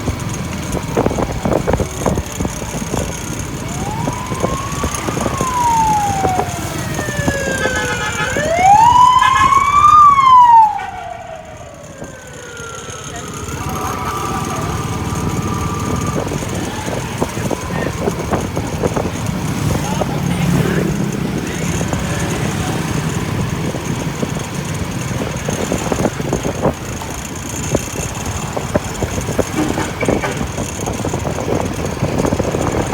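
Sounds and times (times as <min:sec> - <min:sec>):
traffic rumble: 0:00.0 - 0:32.9
vehicle engine idling: 0:00.0 - 0:32.9
siren wailing: 0:03.2 - 0:20.7.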